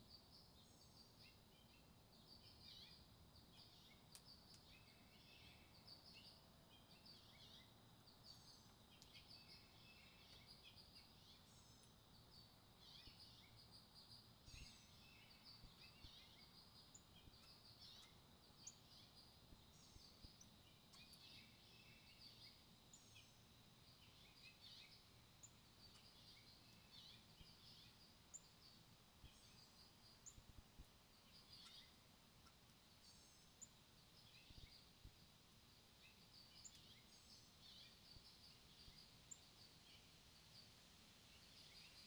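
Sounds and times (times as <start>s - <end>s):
low steady background rumble: 0.0s - 42.0s
small birds chirping and twittering: 0.0s - 42.0s.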